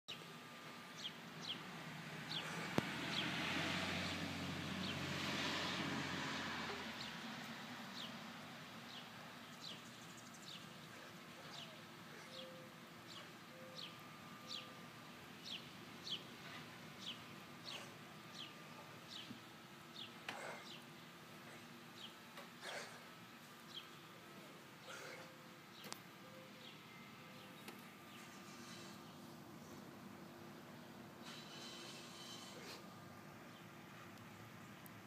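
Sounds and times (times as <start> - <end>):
songbird chirping: 8.8 - 22.4.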